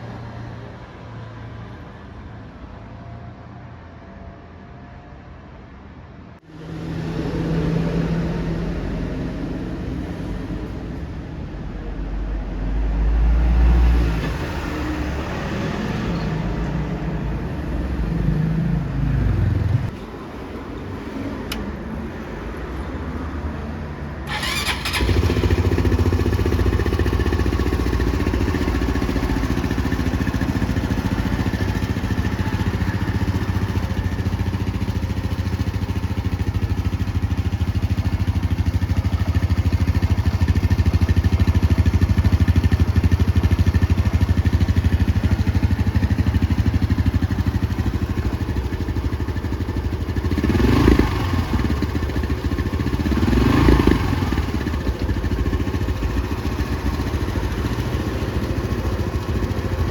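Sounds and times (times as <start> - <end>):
motorcycle engine idling: 24.3 - 59.9.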